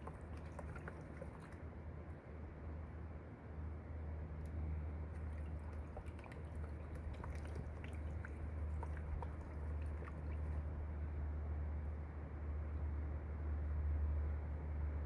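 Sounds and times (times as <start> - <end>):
water swishing in a pan: 0.0 - 1.6, 5.1 - 10.9
steady low hum: 4.5 - 12.7.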